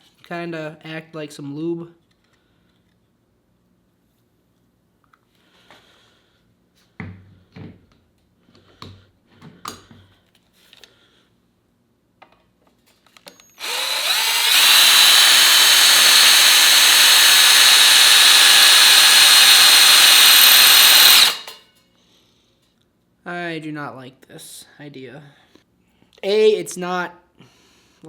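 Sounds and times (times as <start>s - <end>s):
power drill boring into metal: 13.4s - 21.6s.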